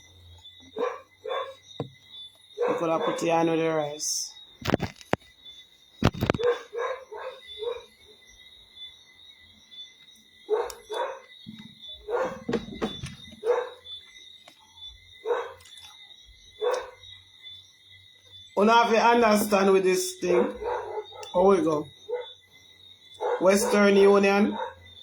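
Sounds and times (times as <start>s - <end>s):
dog barking: 0.7s - 1.6s, 2.6s - 3.4s, 6.4s - 7.9s, 10.5s - 11.3s, 12.0s - 12.7s, 13.4s - 13.9s, 15.2s - 15.6s, 16.6s - 17.0s, 20.2s - 22.4s, 23.2s - 25.0s.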